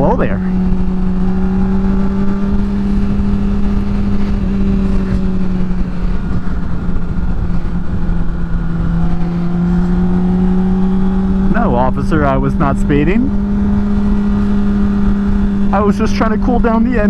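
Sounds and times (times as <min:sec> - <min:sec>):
motorcycle engine cruising: 0:00.0 - 0:17.0
wind rushing on microphone: 0:00.0 - 0:17.0.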